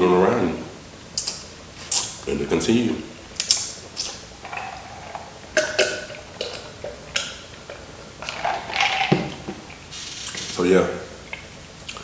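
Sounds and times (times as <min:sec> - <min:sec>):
wet mouth sounds: 0:01.2 - 0:02.3, 0:03.4 - 0:07.5
crunchy chewing: 0:01.2 - 0:02.4, 0:03.4 - 0:12.0.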